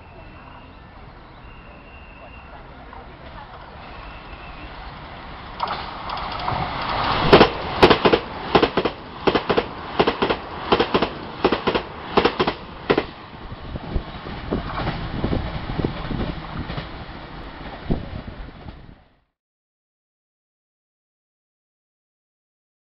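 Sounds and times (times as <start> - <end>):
train wheels clicking over rail joints: 5.5 - 13.2, 14.3 - 18.9.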